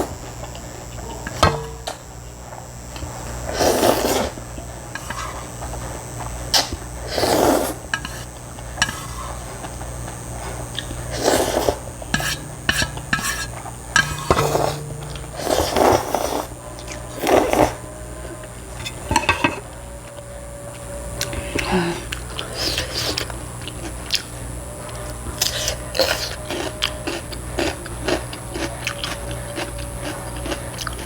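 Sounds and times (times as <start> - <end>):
slurping noodles: 3.4 - 4.4, 6.6 - 9.4, 10.5 - 13.5, 14.1 - 17.8.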